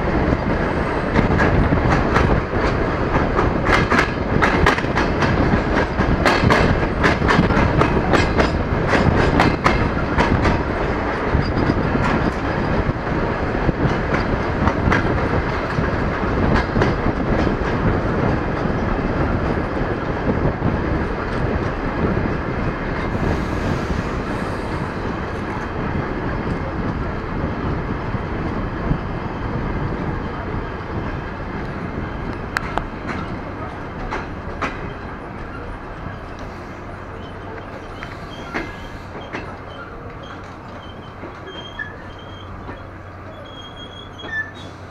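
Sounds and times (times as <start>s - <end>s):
train rumble and rushing air: 0.0s - 44.9s
wheels clicking over rail joints: 0.5s - 20.1s, 30.3s - 44.9s.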